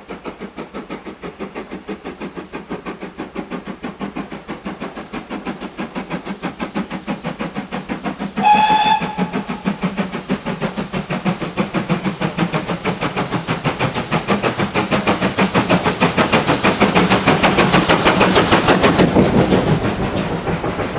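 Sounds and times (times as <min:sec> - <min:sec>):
steam locomotive exhaust beats: 0:00.0 - 0:20.9
short train whistle: 0:08.4 - 0:09.8.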